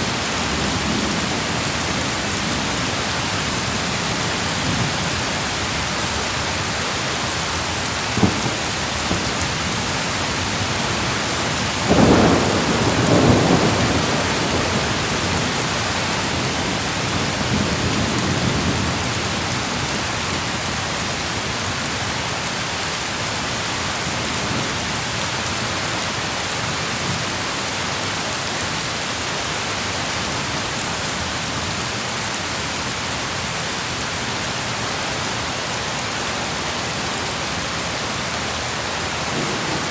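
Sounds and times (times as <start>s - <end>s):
heavy rain: 0.0s - 39.9s
thunder crack: 8.1s - 9.6s, 11.8s - 15.5s
rolling thunderclap: 8.1s - 19.2s.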